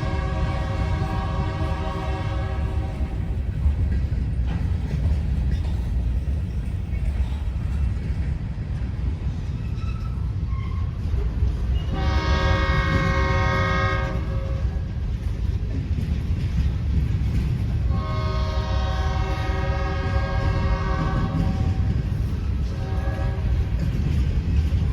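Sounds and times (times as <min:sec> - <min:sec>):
train air horn blasts: 0:00.0 - 0:03.2, 0:11.9 - 0:14.9, 0:17.9 - 0:22.0, 0:22.6 - 0:23.8
passing train rumble: 0:00.0 - 0:24.9.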